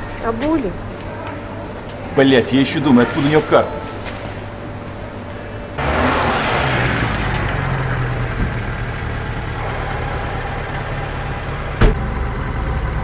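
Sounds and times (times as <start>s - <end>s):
old car engine running: 5.8s - 13.0s.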